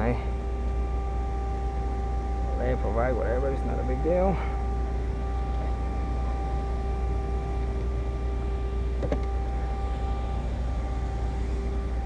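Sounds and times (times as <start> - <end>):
machine hum with whine: 0.0 - 12.0.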